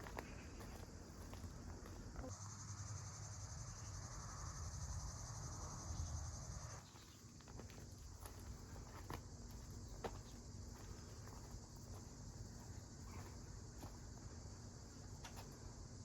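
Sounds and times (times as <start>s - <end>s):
cricket trilling: 0.0s - 16.0s.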